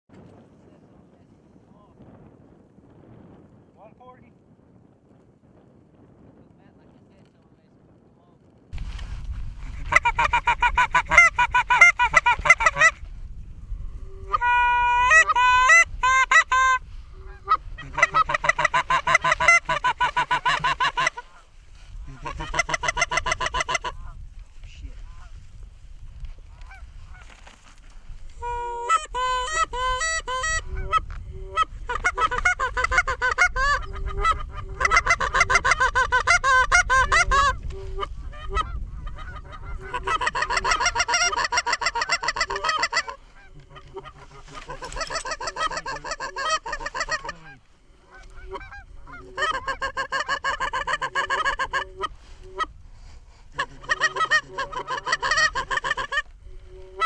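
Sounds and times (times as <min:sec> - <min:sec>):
geese honking and clucking: 0:09.7 - 0:13.1, 0:14.0 - 0:24.2, 0:26.5 - 0:27.4, 0:28.4 - 0:57.0.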